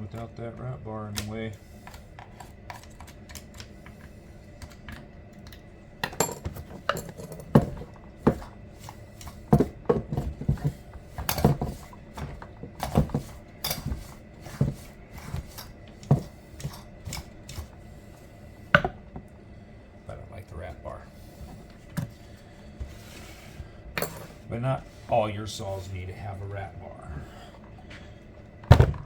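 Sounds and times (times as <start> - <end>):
metal tools clinking and knocking: 6.0 - 7.9.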